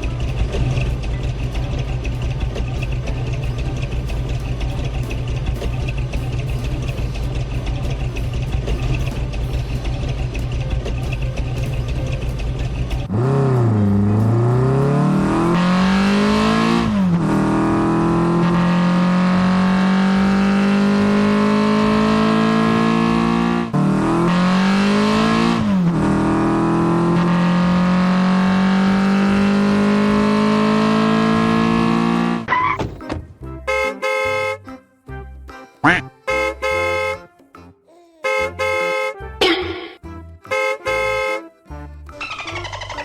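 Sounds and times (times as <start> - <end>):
electronic car engine revving: 0.0 - 32.8, 42.2 - 43.0.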